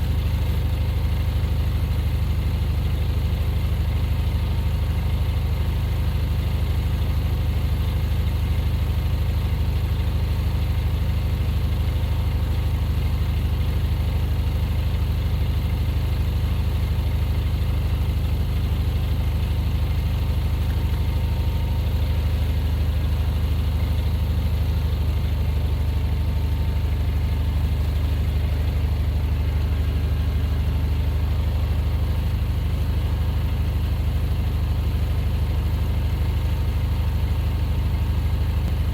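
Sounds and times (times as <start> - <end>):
vehicle engine droning: 13.8 - 38.9.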